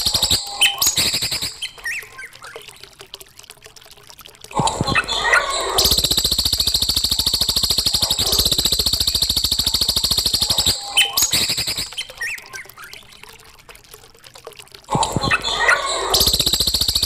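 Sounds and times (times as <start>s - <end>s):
songbird buzzy high trill: 5.9s - 11.9s
bird short chirps: 7.0s - 12.3s.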